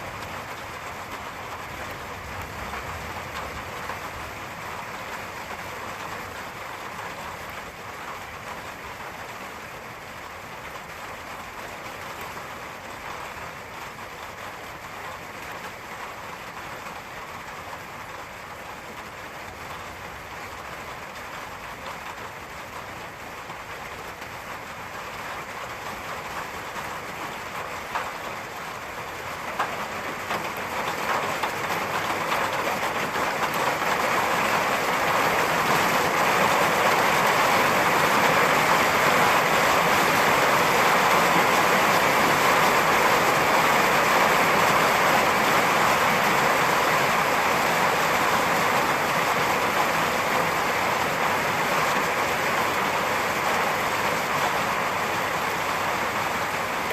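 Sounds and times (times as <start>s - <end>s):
heavy rain: 0.0s - 56.9s
raindrop splats: 15.5s - 45.6s.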